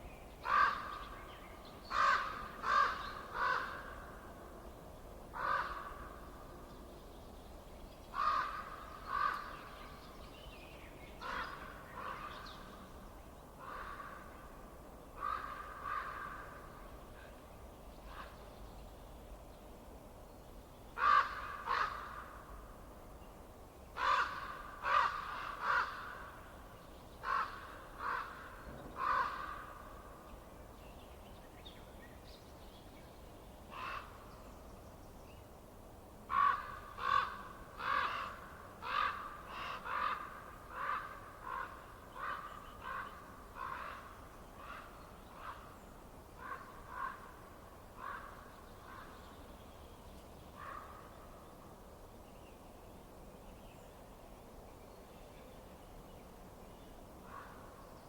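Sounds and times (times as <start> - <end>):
harsh cawing bird calls: 0.4 - 1.1, 1.9 - 4.0, 5.3 - 6.2, 8.1 - 9.8, 13.6 - 14.3, 15.2 - 16.6, 21.0 - 22.4, 24.0 - 26.4, 27.2 - 30.0, 33.7 - 34.3, 36.3 - 45.8, 46.4 - 49.2.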